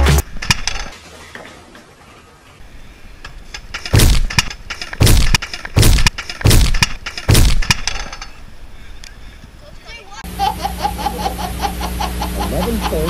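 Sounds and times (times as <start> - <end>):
hard knocks: 3.7 - 8.0.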